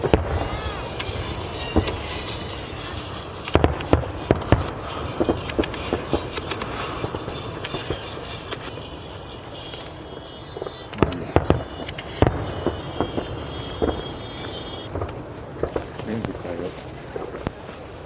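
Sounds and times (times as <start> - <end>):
loud firework bangs: 0.0 - 17.6
fireworks rumbling and cracking: 0.0 - 18.0.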